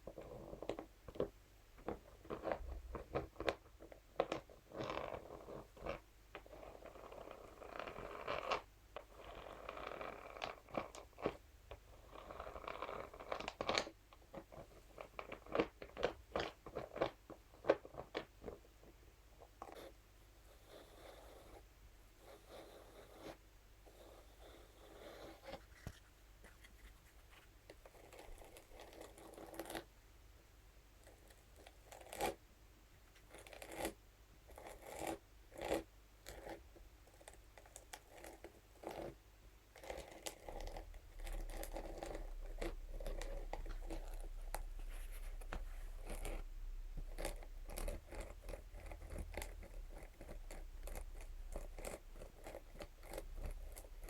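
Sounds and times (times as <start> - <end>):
brush scratching a surface: 22.2 - 29.8, 39.9 - 54.0.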